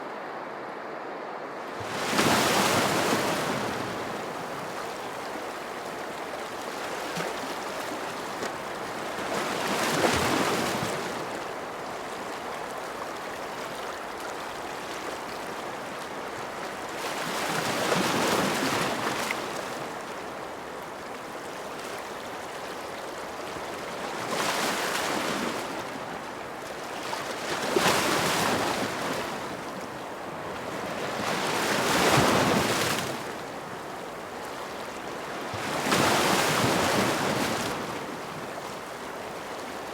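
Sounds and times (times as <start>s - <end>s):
ocean waves breaking: 1.6s - 16.4s, 26.9s - 39.9s.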